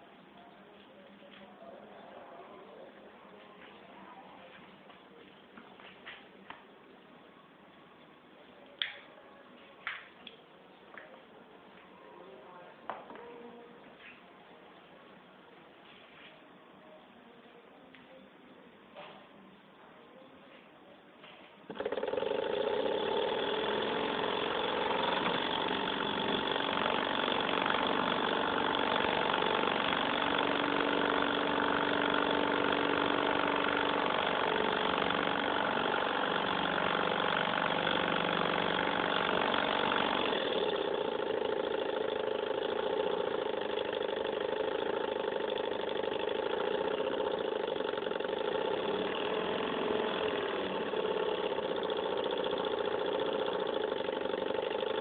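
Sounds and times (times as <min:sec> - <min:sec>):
small engine hum and clatter: 0:21.2 - 0:55.0.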